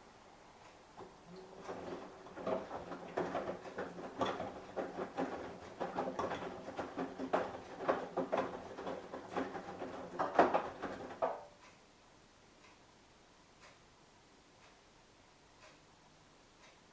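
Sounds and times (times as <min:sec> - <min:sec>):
washing machine motor hum: 0:00.9 - 0:11.6
laundry tumbling and knocking: 0:01.0 - 0:11.6.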